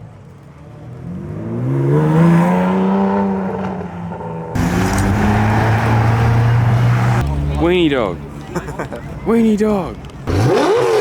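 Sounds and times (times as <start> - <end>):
car engine revving: 0.9 - 7.6, 10.2 - 11.0.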